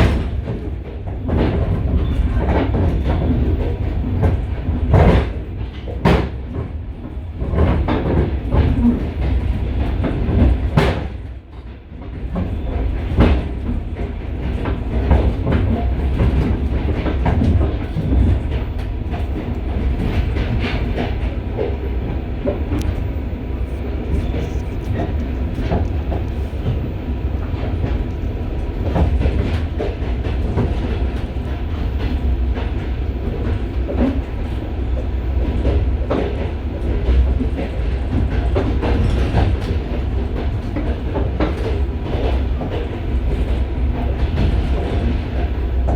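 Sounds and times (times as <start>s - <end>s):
train rumble and clatter: 0.0s - 45.9s.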